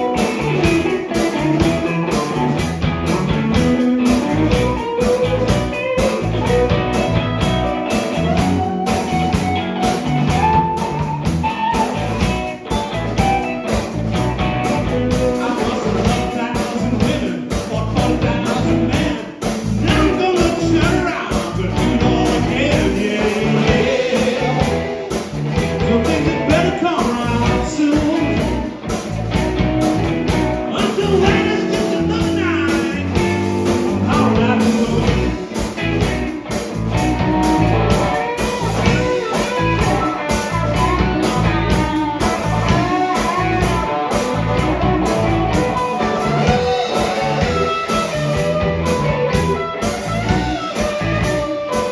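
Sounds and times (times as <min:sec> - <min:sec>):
blues-rock band playing: 0:00.0 - 0:51.9
person singing: 0:15.1 - 0:28.9, 0:30.6 - 0:35.8.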